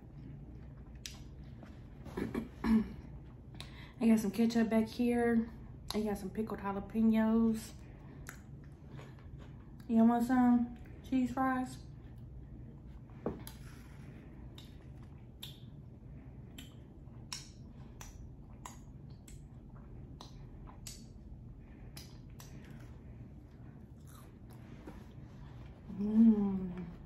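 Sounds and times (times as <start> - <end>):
chewing with wet mouth smacks: 0.0 - 1.7, 8.0 - 9.9, 12.1 - 25.2
person humming: 25.9 - 27.0.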